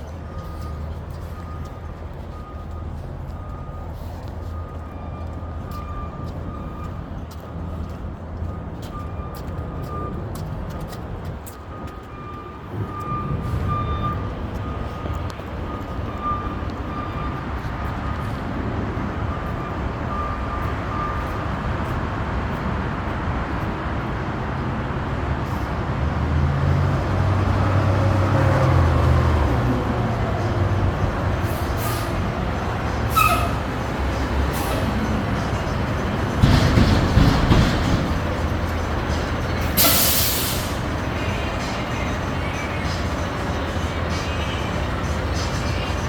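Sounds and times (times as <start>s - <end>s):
backup alarm beeping: 0.2s - 10.3s, 11.7s - 18.4s
garbage truck engine running: 28.8s - 46.0s.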